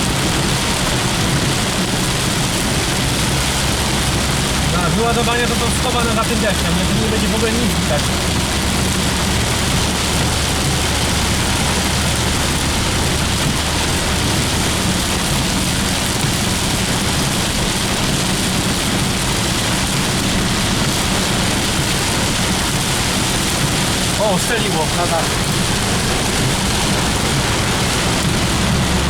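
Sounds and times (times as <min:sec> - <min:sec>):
car engine and tyre noise: 0:00.0 - 0:29.0
heavy rain on a car: 0:00.0 - 0:29.0.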